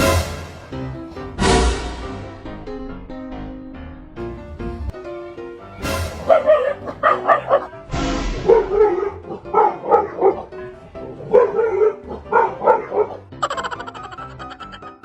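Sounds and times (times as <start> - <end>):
background music: 0.0 - 15.0
dog barking: 6.1 - 13.3.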